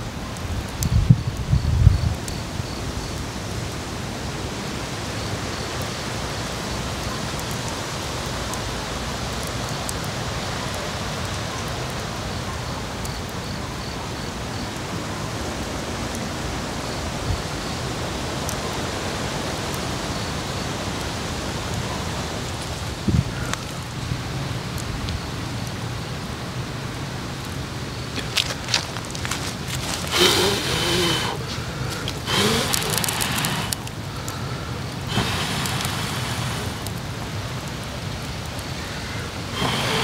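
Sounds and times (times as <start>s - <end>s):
steady rushing noise: 27.6s - 38.8s.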